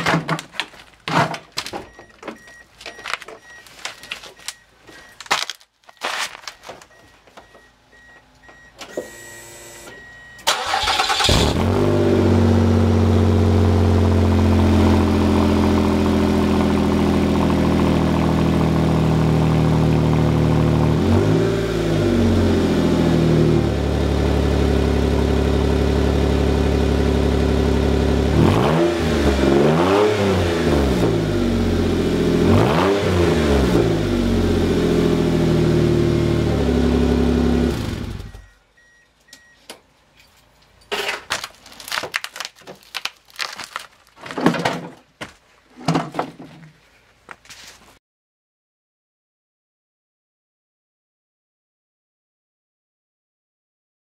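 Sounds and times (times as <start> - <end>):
engine cranking: 10.4 - 11.7
engine revving: 10.5 - 38.4
loud engine running: 10.7 - 21.2.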